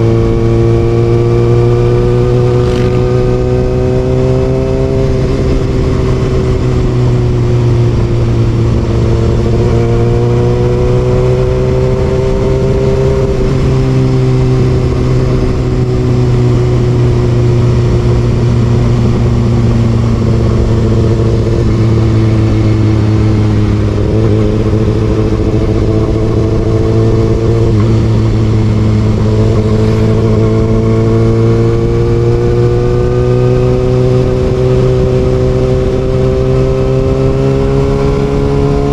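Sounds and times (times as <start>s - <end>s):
motorcycle engine running: 0.0s - 38.9s
steady low rumble: 10.9s - 32.4s.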